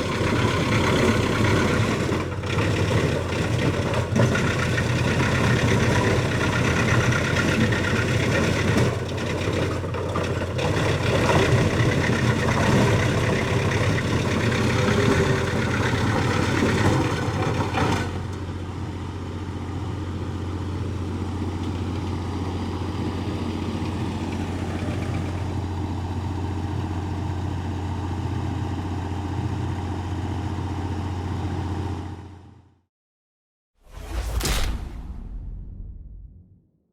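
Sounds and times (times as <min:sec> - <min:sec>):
wood chipper clattering: 0:00.0 - 0:18.5
wood chipper engine hum: 0:00.0 - 0:32.3.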